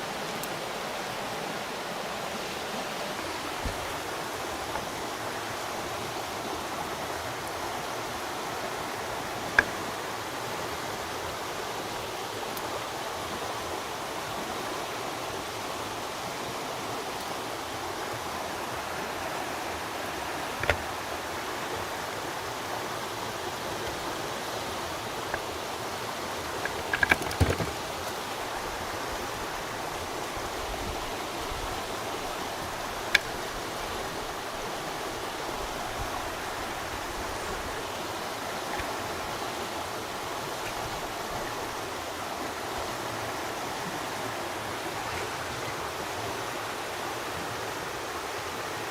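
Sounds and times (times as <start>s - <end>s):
stream water flowing: 0.0s - 48.9s
sharp knocks: 26.6s - 27.8s.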